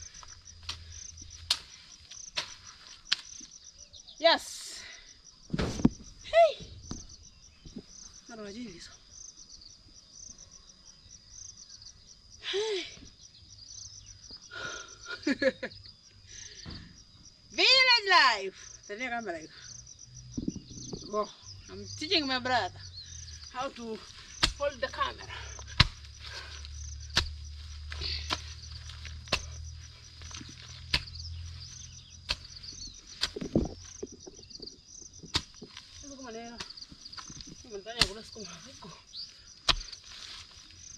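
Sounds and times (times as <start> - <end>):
crickets chirping: 0.0 - 40.9
hand tool chopping: 0.6 - 3.4, 23.6 - 34.1, 35.2 - 38.9, 39.6 - 40.6.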